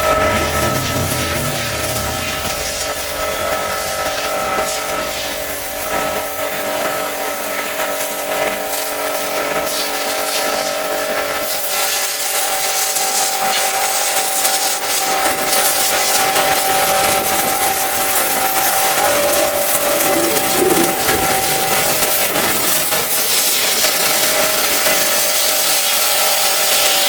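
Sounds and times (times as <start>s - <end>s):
pump motor whine: 0.0s - 4.2s, 18.5s - 22.7s
water jet hissing: 18.7s - 22.7s.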